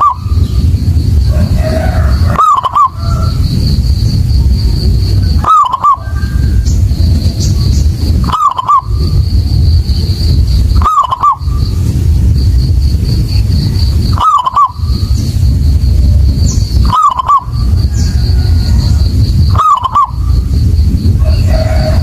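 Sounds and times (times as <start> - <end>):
dove cooing: 0.0 - 0.6, 1.3 - 3.5, 5.1 - 7.2, 8.0 - 9.2, 10.7 - 11.8, 14.0 - 15.1, 16.4 - 20.5
loud low rumble: 0.0 - 22.0.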